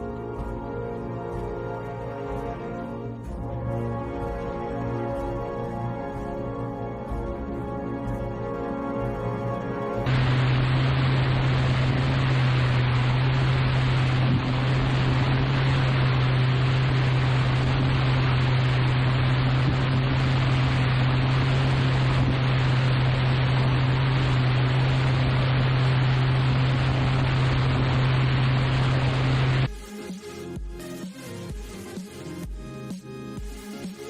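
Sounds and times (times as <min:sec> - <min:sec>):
low hum: 0:00.0 - 0:29.7
loud rushing noise: 0:10.1 - 0:29.7.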